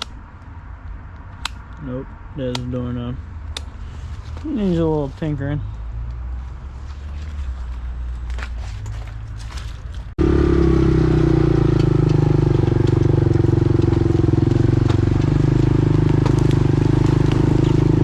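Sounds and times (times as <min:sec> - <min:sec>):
quad bike engine running: 0:10.2 - 0:18.0.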